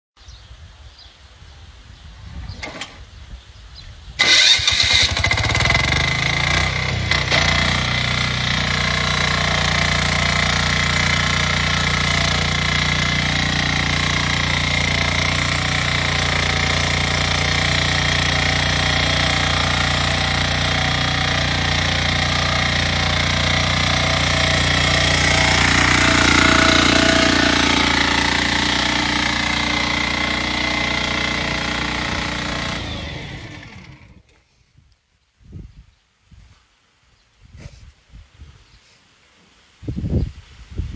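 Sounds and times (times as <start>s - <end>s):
farm machine engine running: 4.2s - 34.2s.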